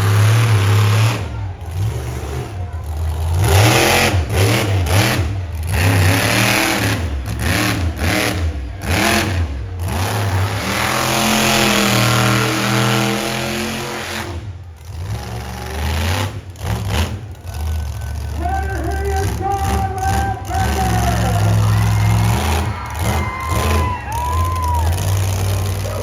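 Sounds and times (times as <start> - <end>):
monster truck engine revving: 0.0 - 26.0.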